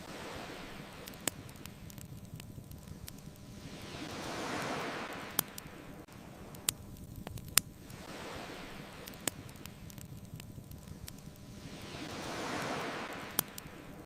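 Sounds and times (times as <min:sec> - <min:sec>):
ocean wave washing in: 0:00.0 - 0:02.0, 0:02.9 - 0:06.7, 0:07.8 - 0:10.0, 0:10.9 - 0:14.0
bonfire crackling and popping: 0:00.0 - 0:14.0.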